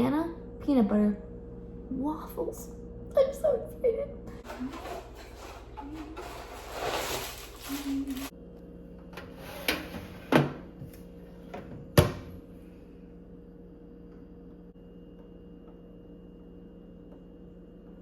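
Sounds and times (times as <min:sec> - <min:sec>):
knocks and clacks of utensils: 0:04.4 - 0:07.3
rustling: 0:04.5 - 0:08.3.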